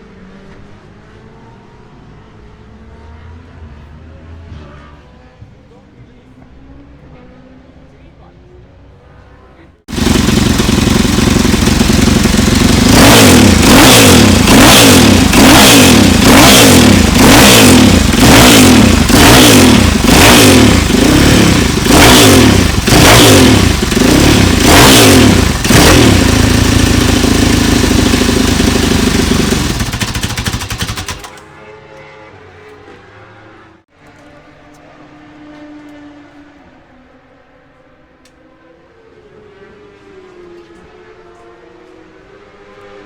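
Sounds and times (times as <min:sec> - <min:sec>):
racing motorcycle engine revving: 0:09.9 - 0:31.4.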